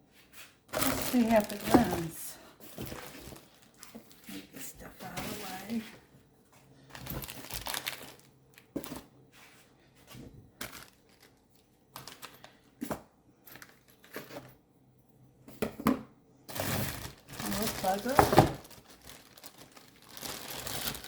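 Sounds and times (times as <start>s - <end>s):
plastic and paper crinkling: 0.7s - 6.0s, 6.9s - 9.1s, 10.6s - 12.6s, 16.5s - 21.0s.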